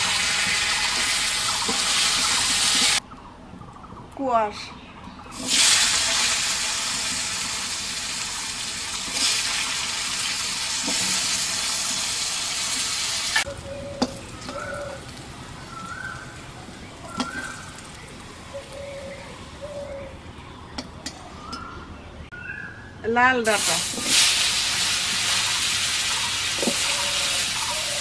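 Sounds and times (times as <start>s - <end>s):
vegetables sizzling in hot oil: 0.0s - 3.0s, 5.4s - 13.4s, 23.5s - 28.0s.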